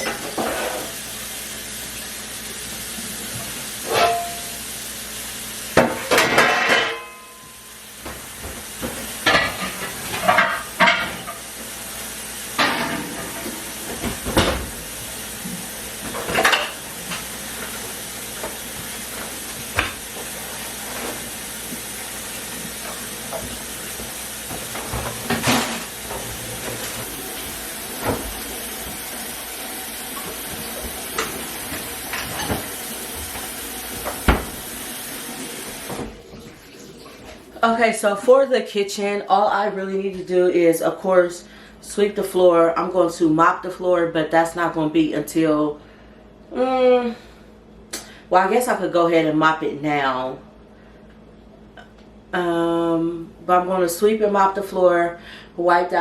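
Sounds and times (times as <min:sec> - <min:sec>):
dishes and utensils clinking: 0:03.8 - 0:04.6, 0:05.8 - 0:07.6, 0:08.9 - 0:11.4, 0:12.6 - 0:14.7, 0:16.0 - 0:17.3, 0:30.2 - 0:34.7.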